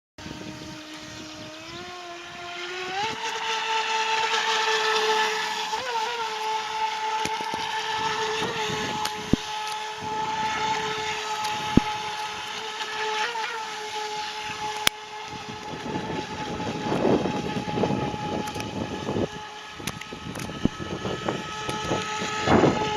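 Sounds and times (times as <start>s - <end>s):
electric motor and jet pump whining: 0.2s - 22.9s
sharp clicks: 19.8s - 20.8s.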